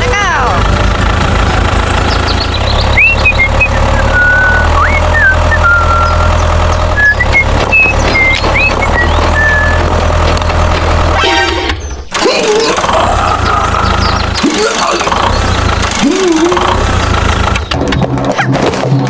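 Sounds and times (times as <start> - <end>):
tractor engine running: 0.0 - 19.0
high-pitched chirps and squeaks: 2.1 - 9.9.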